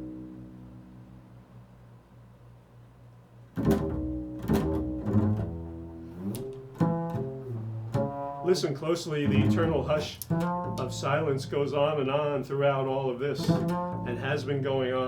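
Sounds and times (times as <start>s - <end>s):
plucked low string instrument: 0.0s - 1.6s, 3.5s - 15.0s.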